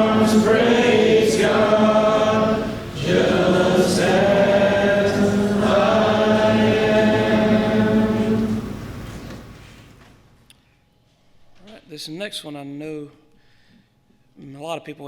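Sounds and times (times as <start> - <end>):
congregation singing a hymn: 0.0 - 9.4.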